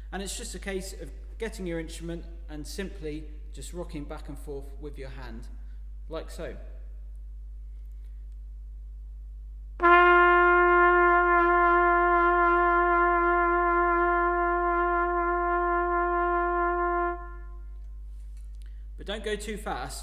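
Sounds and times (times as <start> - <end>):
brass instrument sustained note: 9.8 - 17.9.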